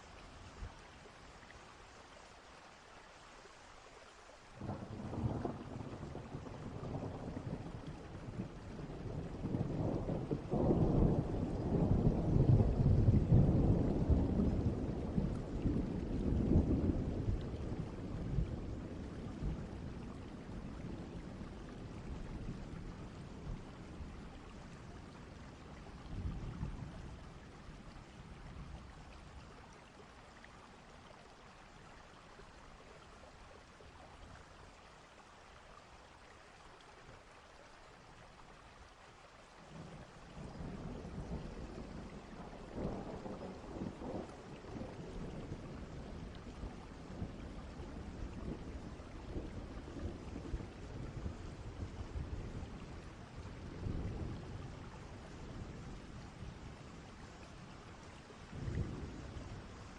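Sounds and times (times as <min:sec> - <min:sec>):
thunder rumbling: 0:04.6 - 0:27.1, 0:39.8 - 0:52.9.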